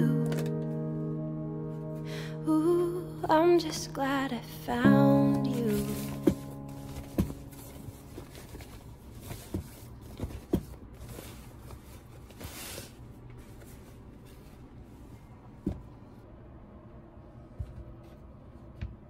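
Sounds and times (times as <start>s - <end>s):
fabric rustle: 5.5s - 15.4s.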